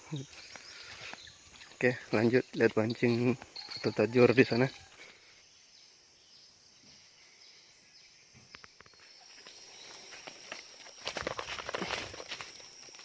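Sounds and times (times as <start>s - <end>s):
faint insect chirring: 0.0s - 13.0s
rustling movement: 9.4s - 13.0s.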